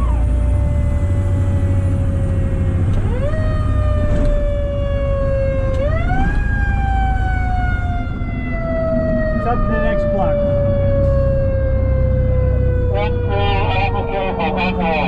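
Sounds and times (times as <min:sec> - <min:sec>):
fire truck siren: 0:00.0 - 0:15.0
truck engine rumble: 0:00.0 - 0:15.0.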